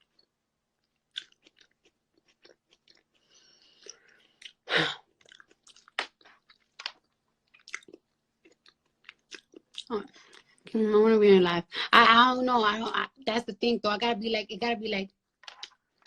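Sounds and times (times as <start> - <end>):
chewing food: 0.0 - 10.7.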